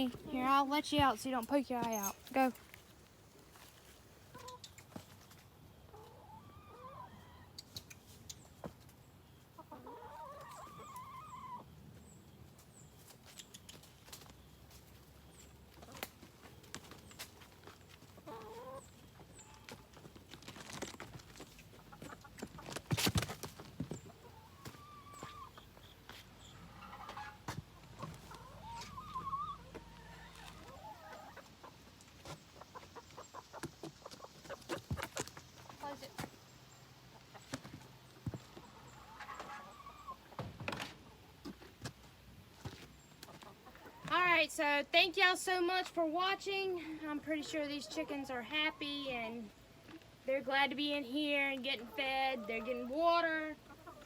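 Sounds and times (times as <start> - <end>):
chickens clucking: 4.2 - 14.3, 14.9 - 22.9, 23.5 - 44.4, 51.8 - 54.0.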